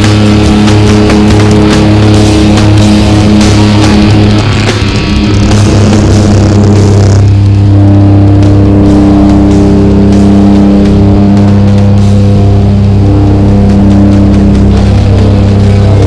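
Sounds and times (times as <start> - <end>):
airplane engines droning: 0.0 - 16.0.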